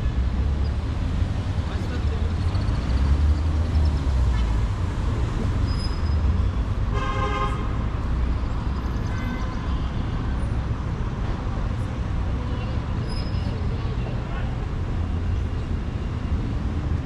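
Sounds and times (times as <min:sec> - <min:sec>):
street traffic rumble: 0:00.0 - 0:17.0
vehicle horn: 0:06.9 - 0:07.8, 0:09.1 - 0:10.0.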